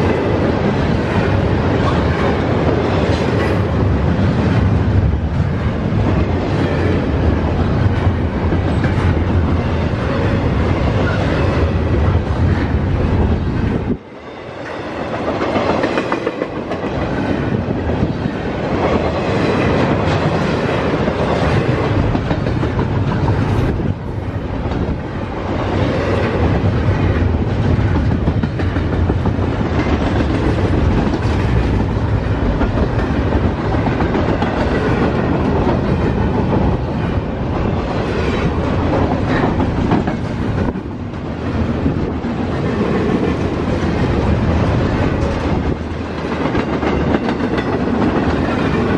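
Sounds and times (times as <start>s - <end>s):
freight train rumbling past: 0.0s - 48.9s
wheels clacking over rail joints: 14.7s - 48.9s.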